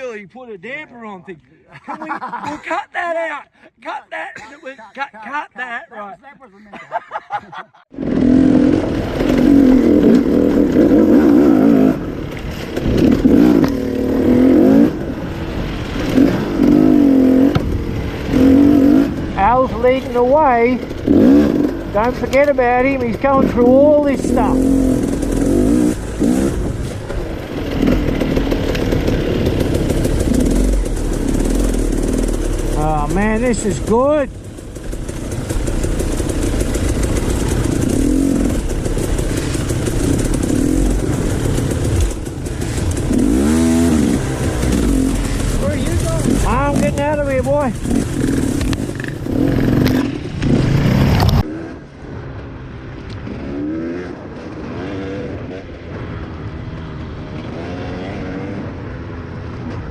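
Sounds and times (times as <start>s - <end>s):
dirt bike engine running: 7.9s - 59.9s.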